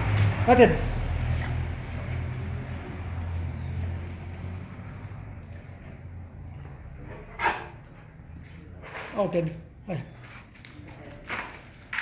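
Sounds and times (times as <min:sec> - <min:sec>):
small birds chirping: 0:01.2 - 0:08.5.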